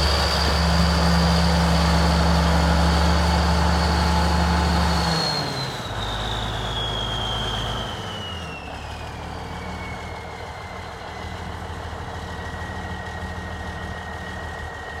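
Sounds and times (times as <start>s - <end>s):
tractor diesel engine idling: 0.0s - 5.1s, 8.7s - 15.0s.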